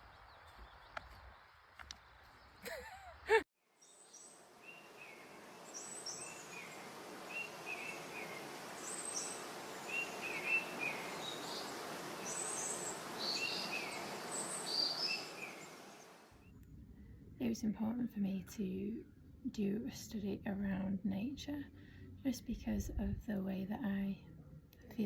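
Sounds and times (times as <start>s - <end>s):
small birds chirping: 3.8s - 16.6s
outdoor background rushing: 4.2s - 16.3s.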